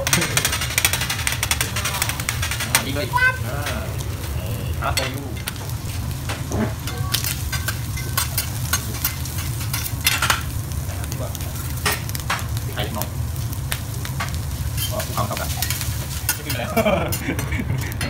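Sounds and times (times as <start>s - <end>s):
food sizzling on a griddle: 0.0s - 18.0s
metal spatula scraping and tapping: 5.0s - 10.5s.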